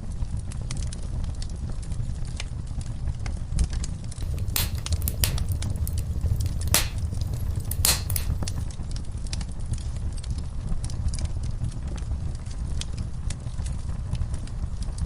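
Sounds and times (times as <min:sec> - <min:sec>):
wood fire crackling: 0:04.2 - 0:08.6.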